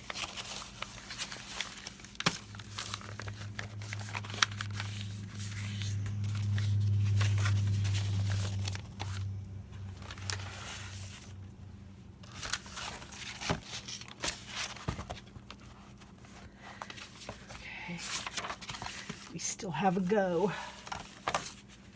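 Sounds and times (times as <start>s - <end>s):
paper rustling and tearing: 0.0s - 11.4s, 12.2s - 19.4s, 20.6s - 21.9s
loud low hum: 3.0s - 12.2s.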